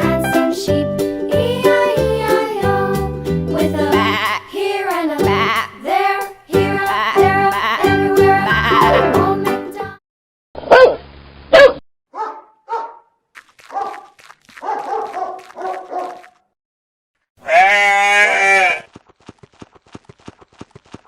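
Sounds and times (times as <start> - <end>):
goat bleating: 4.0 - 4.5, 6.8 - 9.2, 17.4 - 18.9.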